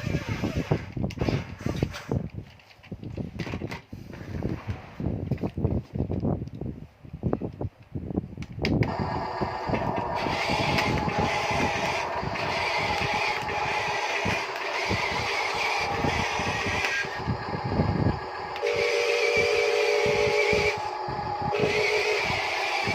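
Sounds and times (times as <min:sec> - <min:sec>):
toy electric motor whining: 0:00.0 - 0:02.1, 0:08.8 - 0:22.9.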